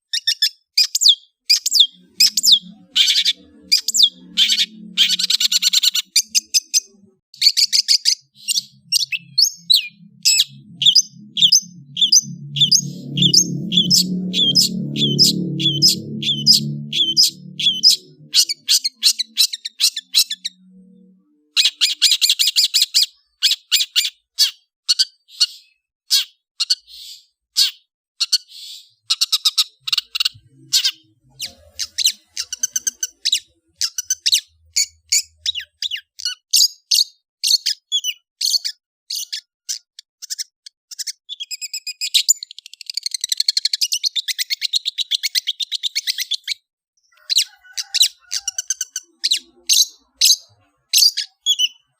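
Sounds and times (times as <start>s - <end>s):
bird singing sharp chattering notes: 0.1s - 20.8s.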